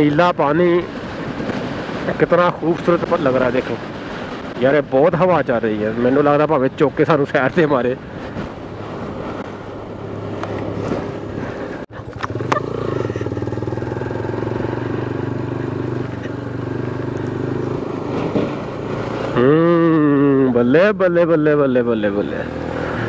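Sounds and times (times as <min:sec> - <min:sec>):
motorcycle engine running: 0:08.7 - 0:19.6.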